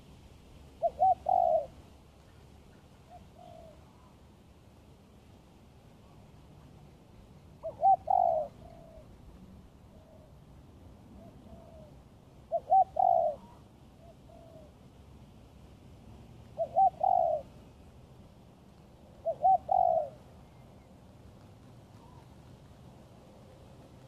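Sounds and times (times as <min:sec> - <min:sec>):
dove cooing: 0:00.8 - 0:04.2, 0:07.6 - 0:10.5, 0:11.1 - 0:14.8, 0:16.5 - 0:17.8, 0:18.9 - 0:20.9, 0:21.9 - 0:22.4.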